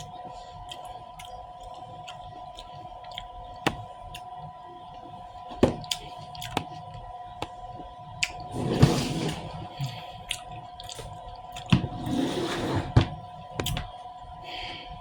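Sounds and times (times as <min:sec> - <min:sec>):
person chewing fruit: 0:00.0 - 0:04.4, 0:05.6 - 0:06.8, 0:09.7 - 0:11.8.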